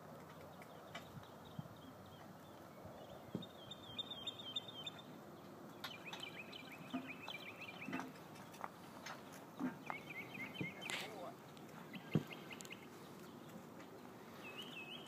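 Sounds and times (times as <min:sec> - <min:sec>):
bird calling in trills: 0:03.1 - 0:05.1, 0:05.8 - 0:08.2, 0:09.7 - 0:13.0.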